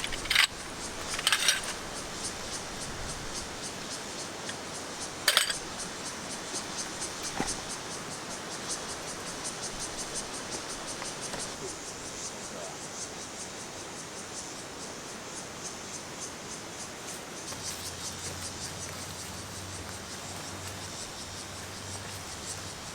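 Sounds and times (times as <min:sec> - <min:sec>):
sharp clatter: 0:00.0 - 0:01.9, 0:05.2 - 0:07.8
background hiss: 0:00.0 - 0:22.9
insects chirping: 0:00.0 - 0:22.9.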